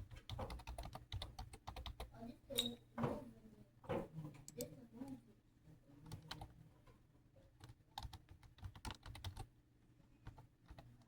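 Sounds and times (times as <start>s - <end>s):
typing on a keyboard: 0.0s - 2.1s, 7.6s - 9.5s, 10.2s - 11.0s.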